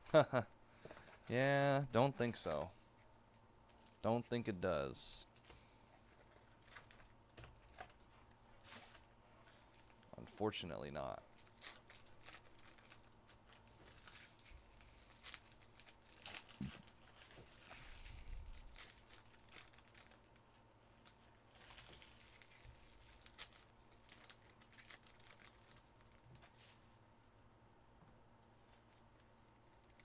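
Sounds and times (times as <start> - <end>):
card pack wrappers crinkling: 11.3 - 26.7, 28.4 - 30.0.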